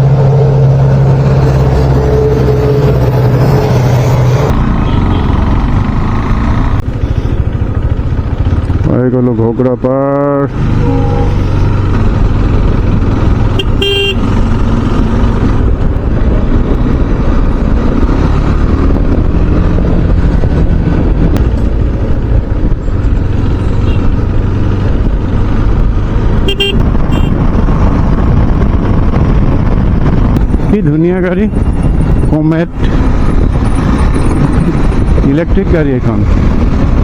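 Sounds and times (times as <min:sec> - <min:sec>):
motorcycle engine: 0:00.0 - 0:37.0
wind on microphone: 0:10.6 - 0:37.0
vehicle horn toots: 0:10.8 - 0:11.6, 0:13.6 - 0:14.3, 0:23.8 - 0:24.1, 0:26.4 - 0:27.4.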